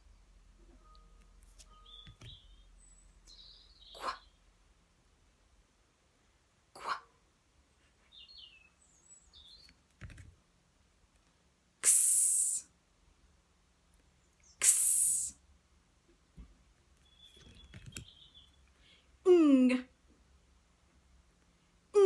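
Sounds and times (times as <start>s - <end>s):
faint bird chirps: 0.0s - 4.5s, 7.9s - 9.8s, 16.9s - 19.1s
woman voicing a hissing ks sound: 11.8s - 12.7s, 14.6s - 15.4s, 19.3s - 19.9s.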